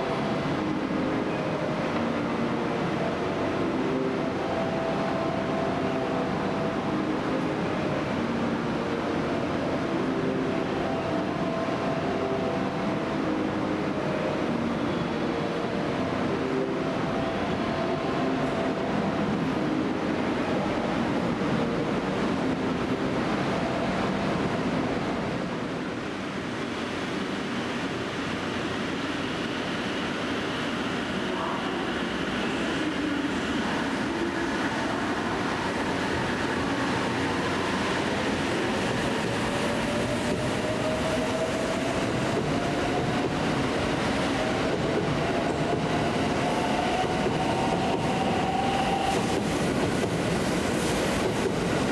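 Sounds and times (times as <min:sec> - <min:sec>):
rising train whine: 0:00.0 - 0:51.9
train rumbling and humming: 0:00.0 - 0:51.9.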